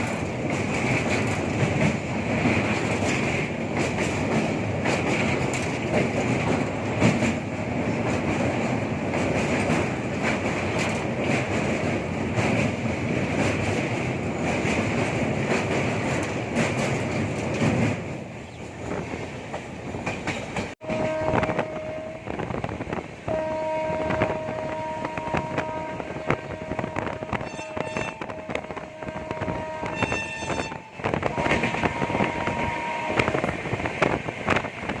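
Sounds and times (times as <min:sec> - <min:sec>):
train rolling rumble: 0:00.0 - 0:35.0
train wheels clicking on rails: 0:00.0 - 0:35.0
steady horn tone: 0:20.8 - 0:22.4, 0:23.3 - 0:33.4.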